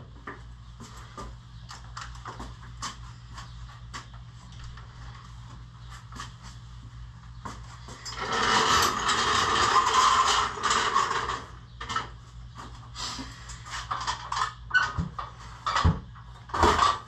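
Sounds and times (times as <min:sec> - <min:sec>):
mechanical rattling scrape: 0:08.0 - 0:11.6.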